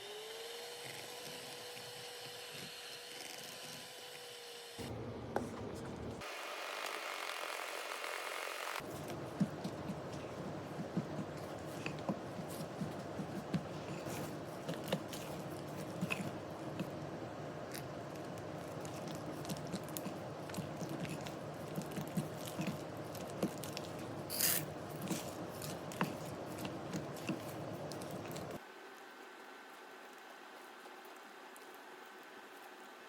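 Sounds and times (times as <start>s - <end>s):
steady background hum: 4.8s - 6.2s, 8.7s - 33.0s
utensils clicking and scraping: 8.8s - 28.6s.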